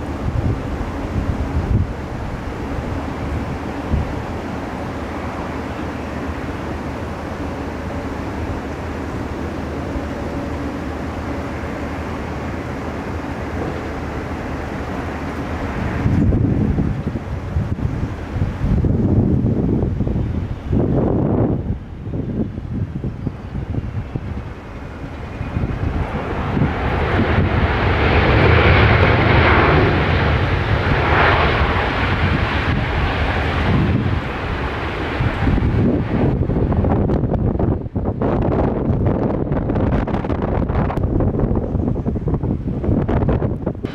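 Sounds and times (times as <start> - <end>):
jet airliner engine noise: 0.0 - 43.9
wind buffeting microphone: 0.0 - 43.9.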